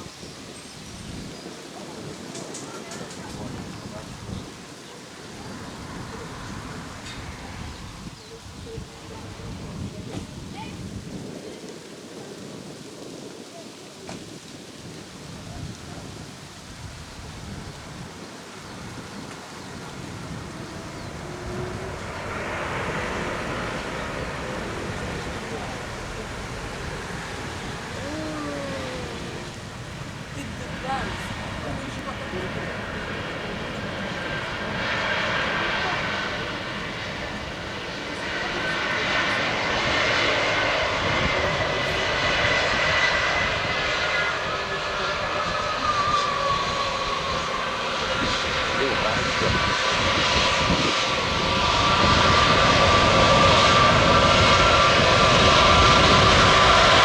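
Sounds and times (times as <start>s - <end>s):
wind rumble on microphone: 0.0s - 57.0s
airplane rushing hiss: 16.8s - 57.0s.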